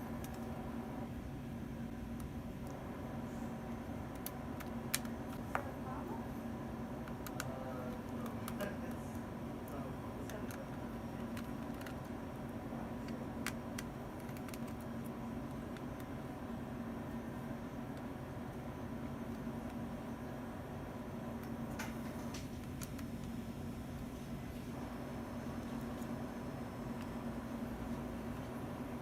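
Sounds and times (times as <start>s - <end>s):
steady low hum: 0.0s - 29.0s
small tools clicking on laptop: 13.0s - 16.1s.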